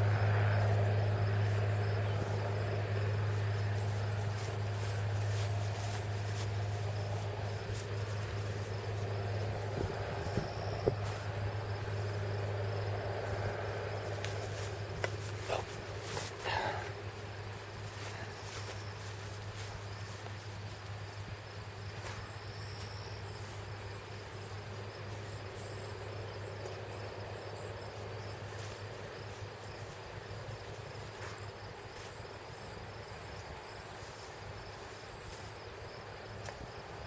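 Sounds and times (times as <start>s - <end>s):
low hum: 0.0s - 21.4s
insect chirping: 0.0s - 37.0s.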